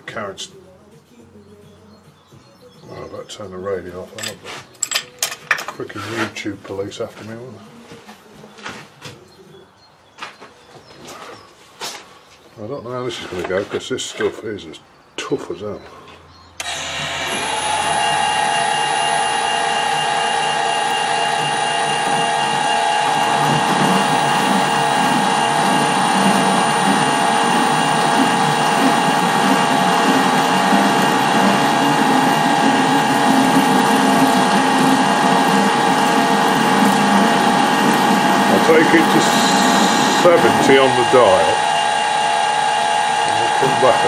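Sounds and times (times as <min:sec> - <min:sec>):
grinding rumble of cutting tool: 0:16.6 - 0:44.0
lathe gear whine: 0:16.6 - 0:44.0.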